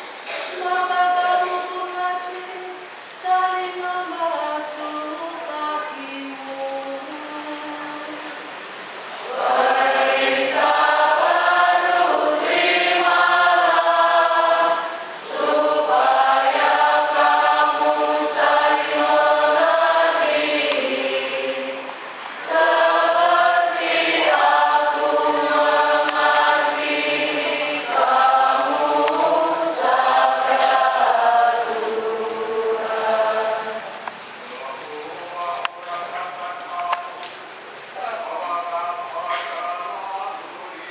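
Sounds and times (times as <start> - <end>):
choir singing a hymn: 9.2 - 34.4.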